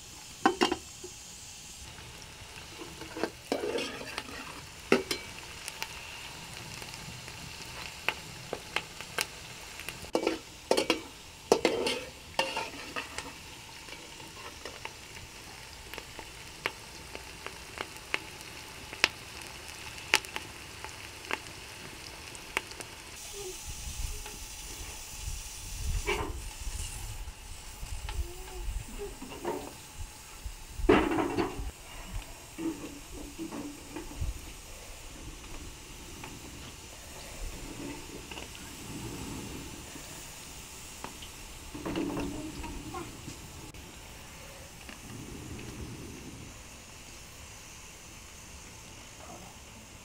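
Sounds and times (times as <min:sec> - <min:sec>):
food sizzling in a pot: 0:00.0 - 0:50.0
utensil scraping a pot: 0:02.7 - 0:05.4, 0:10.1 - 0:14.8
low rumble: 0:29.8 - 0:48.2.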